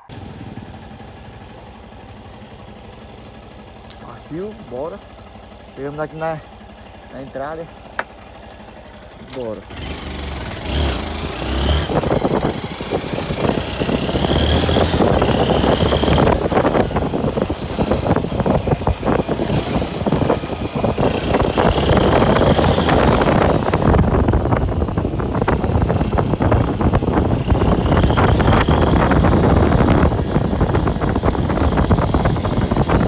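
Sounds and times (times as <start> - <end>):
vehicle engine running: 0.0 - 33.0
wind buffeting microphone: 9.7 - 33.0.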